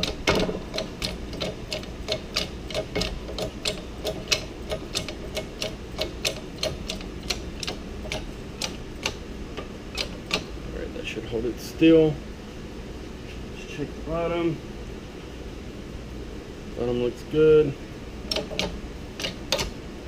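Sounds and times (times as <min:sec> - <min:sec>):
ratchet wrench clicking: 0:00.0 - 0:09.2, 0:09.9 - 0:10.5, 0:18.3 - 0:19.7.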